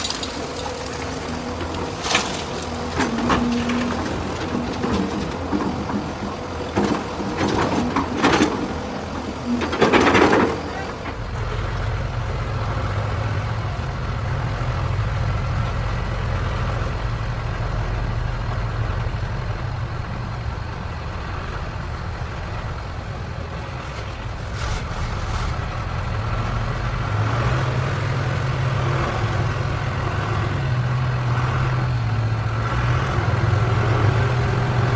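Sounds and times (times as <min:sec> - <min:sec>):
truck engine running: 0:00.0 - 0:34.9.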